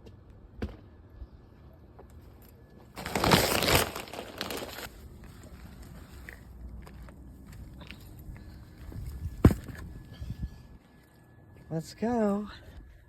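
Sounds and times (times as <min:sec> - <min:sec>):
rustling crinkling noise: 0:02.8 - 0:08.2.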